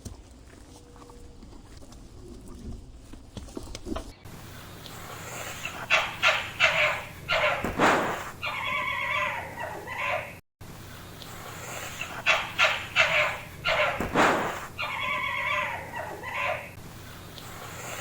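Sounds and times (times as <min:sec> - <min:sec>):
dog barking: 0:12.3 - 0:14.2, 0:14.8 - 0:16.7
dog whining: 0:14.8 - 0:16.8.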